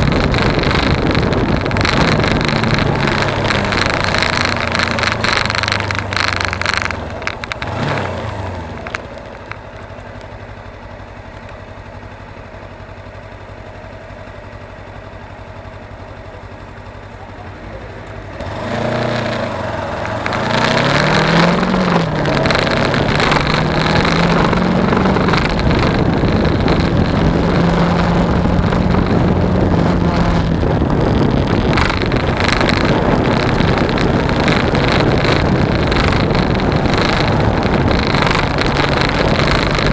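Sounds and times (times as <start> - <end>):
wind rush on microphone: 0.0 - 8.9, 18.4 - 39.9
motorcycle engine: 0.0 - 39.9.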